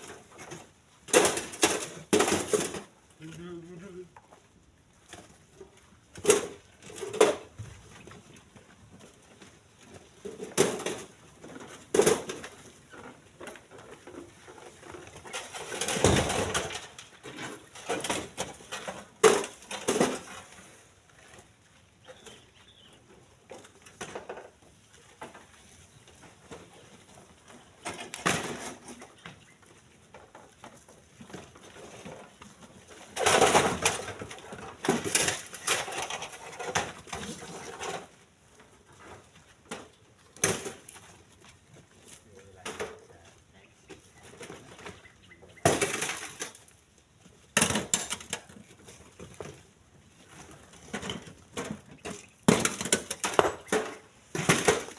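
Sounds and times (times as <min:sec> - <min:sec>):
stones clattering into truck bed: 0:00.0 - 0:03.0, 0:10.2 - 0:20.7, 0:27.8 - 0:29.2, 0:30.1 - 0:38.2, 0:39.0 - 0:41.1, 0:45.6 - 0:46.8, 0:47.5 - 0:49.6, 0:50.2 - 0:54.9.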